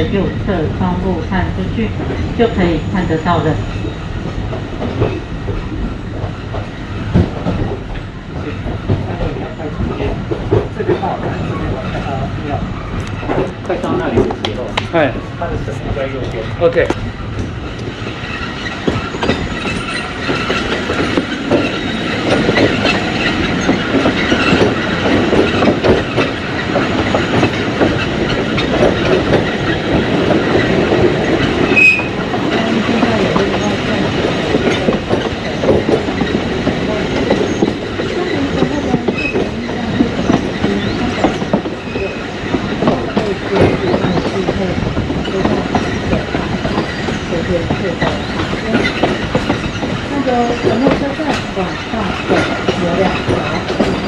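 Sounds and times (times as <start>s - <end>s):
train rumble: 0.0s - 54.0s
wheels clattering over rails: 0.0s - 54.0s
high squeal: 31.7s - 32.2s.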